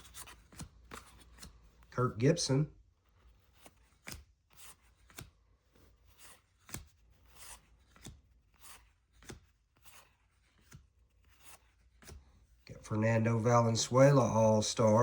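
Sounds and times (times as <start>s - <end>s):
cardboard cards flicking and sliding: 0.0s - 1.9s, 3.2s - 12.6s.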